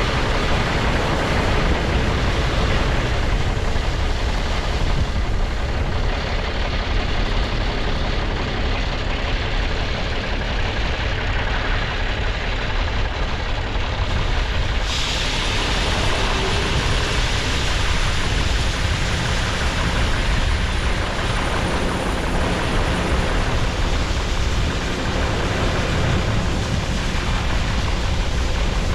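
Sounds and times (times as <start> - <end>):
farm machinery rumbling: 0.0 - 28.9
hiss: 13.8 - 28.9.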